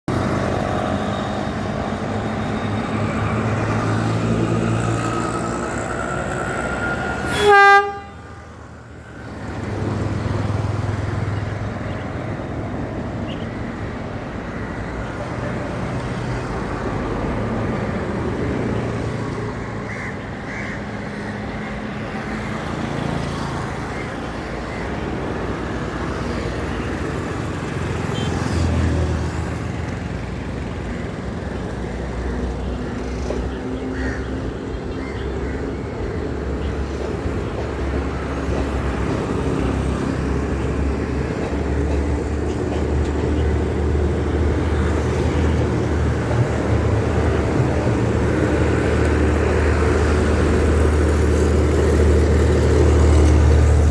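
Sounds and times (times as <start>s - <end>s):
train engine rumbling: 0.1s - 20.4s, 28.7s - 53.9s
train horn blast: 7.1s - 8.5s.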